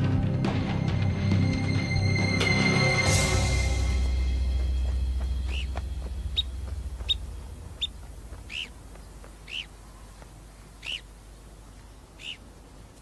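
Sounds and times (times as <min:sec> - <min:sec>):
low music drone: 0:00.0 - 0:10.0
rising and falling bird calls: 0:04.0 - 0:13.0
sharp bird chirps: 0:05.4 - 0:11.1, 0:12.1 - 0:12.5.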